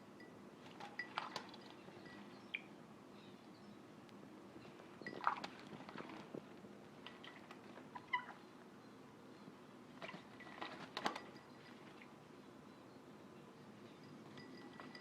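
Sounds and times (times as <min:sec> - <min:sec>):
parrot chirping calls: 0:07.9 - 0:08.5.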